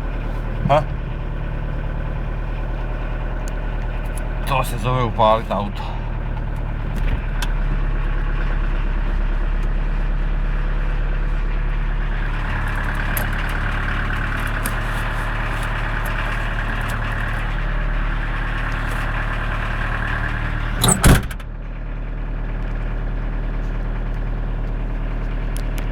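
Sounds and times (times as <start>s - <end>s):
car engine idling: 0.0s - 25.9s
sharp double thump: 20.8s - 21.4s.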